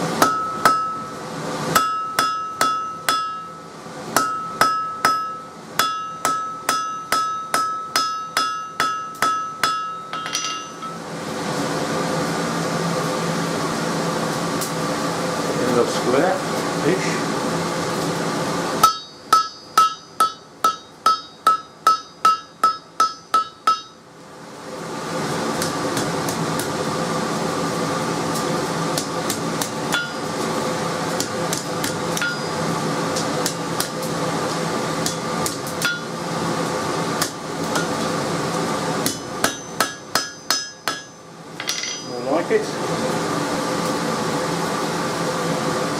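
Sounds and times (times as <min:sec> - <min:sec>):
blower hum: 0:00.0 - 0:45.9
hammer striking steel on anvil: 0:00.2 - 0:11.0, 0:18.8 - 0:24.0, 0:29.0 - 0:30.3, 0:31.2 - 0:32.6, 0:35.0 - 0:36.1, 0:39.0 - 0:42.4.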